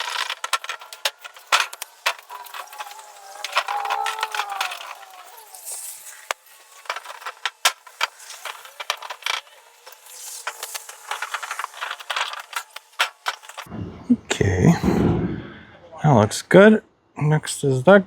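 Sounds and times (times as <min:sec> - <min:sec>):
scrubbing and wiping metal: 0:00.0 - 0:13.7.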